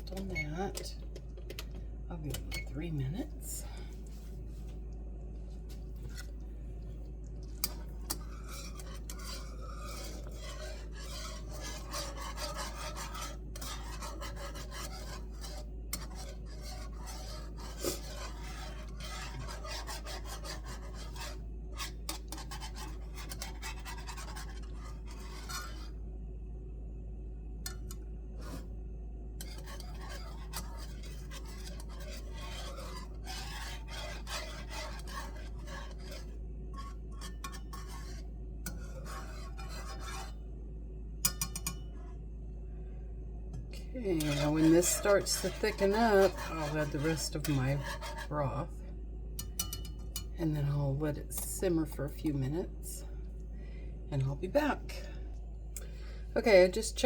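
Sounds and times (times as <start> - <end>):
steady low hum: 0.0 - 57.0
utensil scraping a skillet: 6.0 - 6.3, 7.6 - 26.0, 27.7 - 28.7, 29.4 - 40.4, 41.2 - 42.1, 43.8 - 48.8, 49.4 - 53.0.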